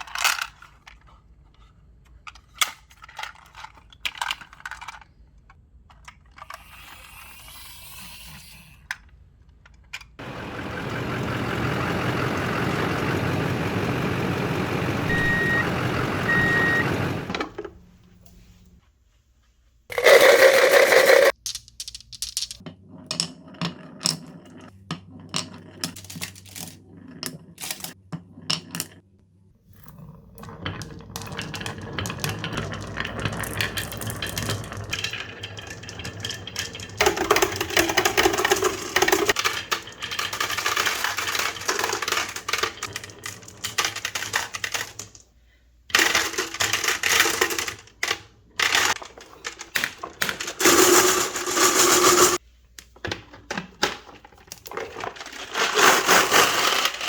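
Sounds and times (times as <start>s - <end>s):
marbles rolling down marble run: 19.9s - 21.4s, 29.9s - 45.2s, 46.0s - 52.4s, 54.7s - 57.0s.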